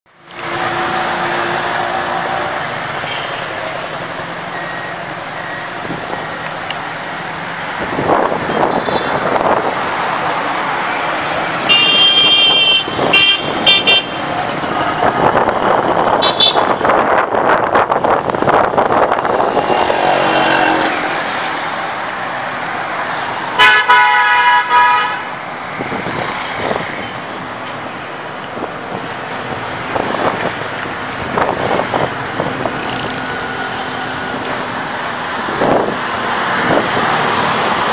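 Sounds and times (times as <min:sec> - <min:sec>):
traffic noise: 0:00.1 - 0:37.9
strong wind: 0:05.7 - 0:23.6, 0:25.1 - 0:37.9
vehicle horns honking: 0:08.5 - 0:09.3, 0:11.6 - 0:14.2, 0:16.0 - 0:16.9, 0:23.6 - 0:25.3.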